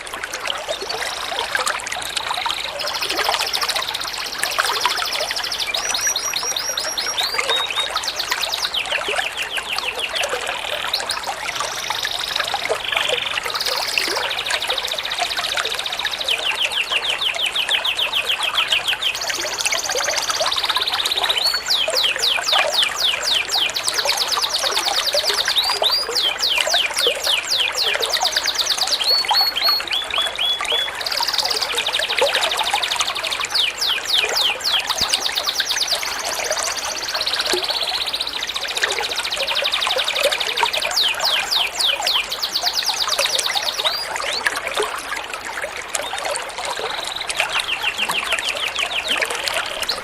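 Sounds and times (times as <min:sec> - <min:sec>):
songbirds chirping: 0:00.0 - 0:50.0
trickling water: 0:00.0 - 0:50.0.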